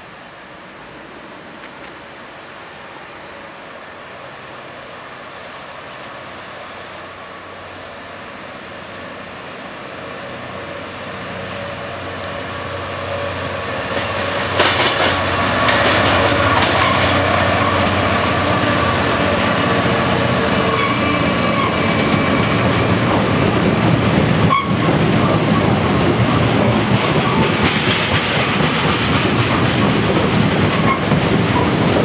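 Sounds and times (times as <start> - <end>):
diesel locomotive engine passing: 0.1 - 32.0
wagons clickety-clack over rail joints: 13.8 - 18.5, 21.8 - 32.0.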